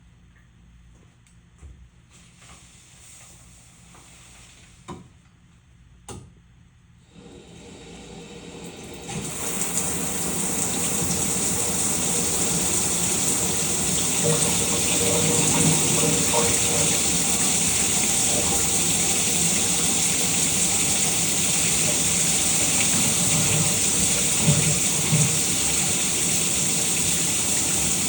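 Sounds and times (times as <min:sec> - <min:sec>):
shower water running: 0:07.1 - 0:28.0.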